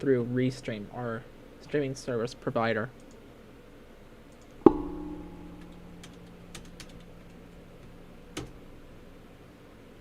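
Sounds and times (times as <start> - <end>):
sharp hit with ringing tone: 4.6 - 8.2
keyboard typing clicks: 5.6 - 7.4.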